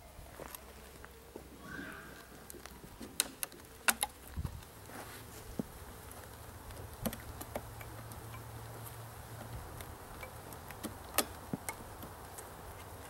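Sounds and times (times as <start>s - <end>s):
faint steady hum: 0.0s - 13.0s
light clicks and taps on wood: 5.6s - 13.0s.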